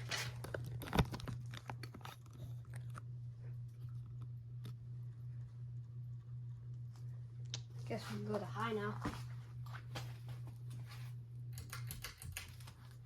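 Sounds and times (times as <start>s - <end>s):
clicks and crackles: 0.0s - 4.8s
ceiling fan humming: 0.0s - 13.0s.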